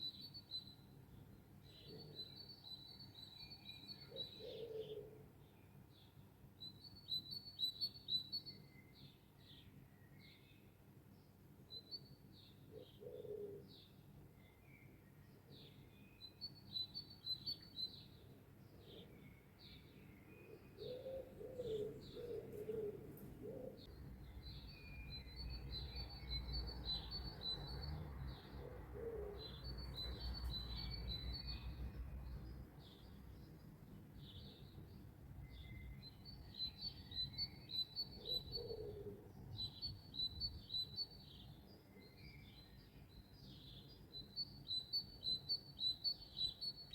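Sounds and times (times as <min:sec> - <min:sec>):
songbirds chirping: 0:00.0 - 0:46.9
dove cooing: 0:04.1 - 0:05.2, 0:13.0 - 0:13.6, 0:20.8 - 0:23.9, 0:28.6 - 0:29.6, 0:38.2 - 0:39.3.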